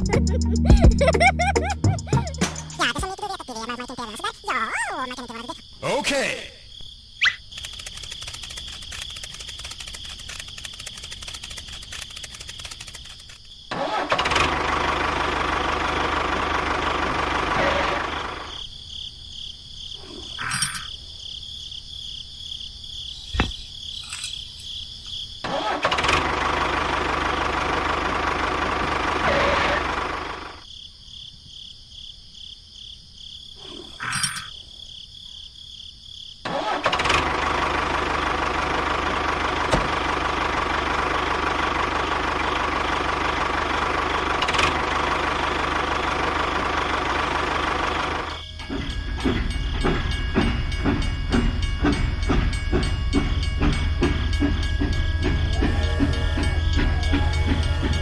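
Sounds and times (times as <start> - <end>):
sharp clicks: 7.2 - 13.5
small motor running: 7.6 - 13.4.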